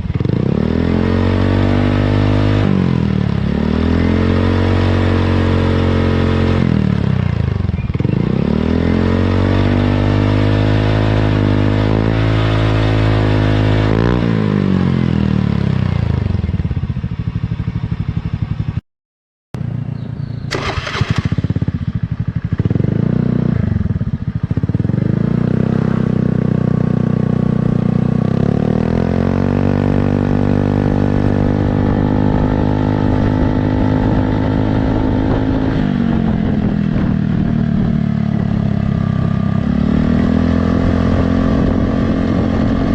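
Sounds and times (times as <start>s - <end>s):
scooter engine idling and revving: 0.0s - 18.8s, 19.6s - 42.9s.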